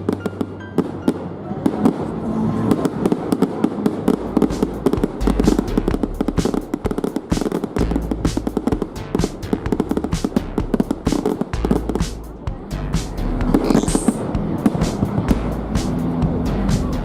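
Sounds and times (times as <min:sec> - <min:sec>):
fireworks crackling and popping: 0:00.0 - 0:12.4, 0:13.0 - 0:16.9.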